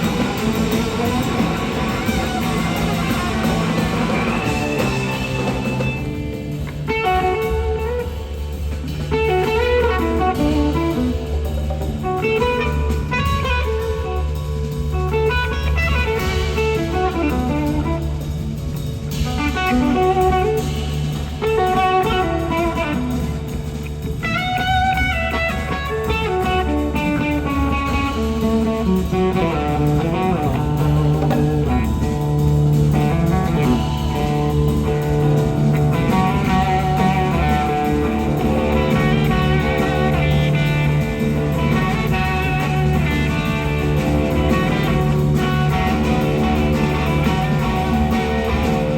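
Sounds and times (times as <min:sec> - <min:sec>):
electric slide guitar solo: 0:00.0 - 0:06.2, 0:24.2 - 0:48.9
bass line: 0:00.0 - 0:48.9
blues-rock band playing: 0:00.0 - 0:48.9.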